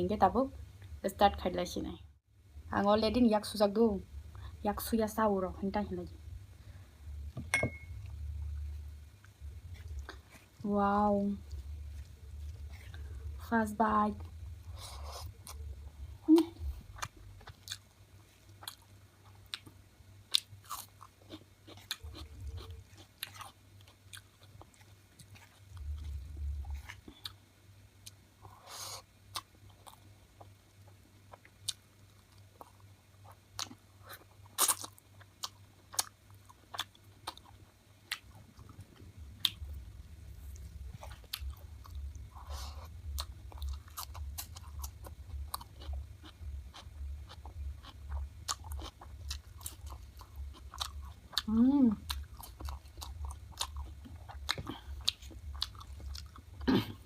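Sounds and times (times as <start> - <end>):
chewing and biting chicken: 41.0 - 56.6.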